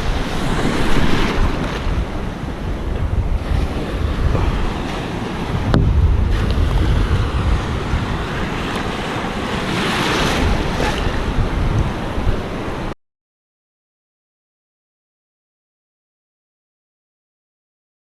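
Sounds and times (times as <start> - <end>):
ocean surf washing in: 0.0 - 13.0
wind buffeting microphone: 0.0 - 13.0.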